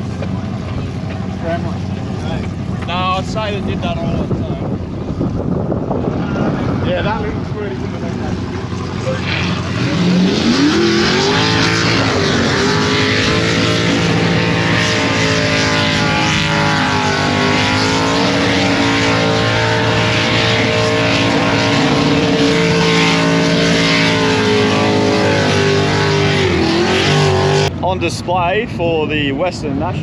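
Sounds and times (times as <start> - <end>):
car engine revving: 0.0 - 28.5.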